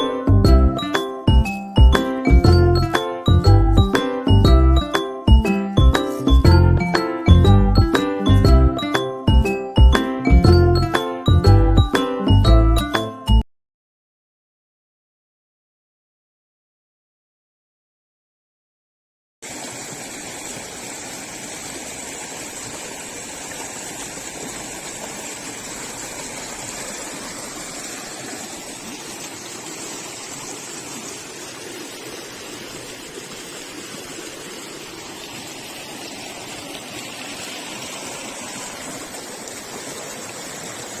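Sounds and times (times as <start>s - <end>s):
river water rushing over rocks: 19.4s - 41.0s.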